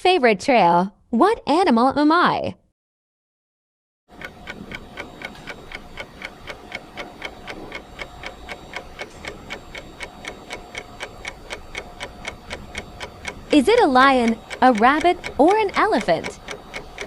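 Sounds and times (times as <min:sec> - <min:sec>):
clock ticking: 0:04.1 - 0:17.0.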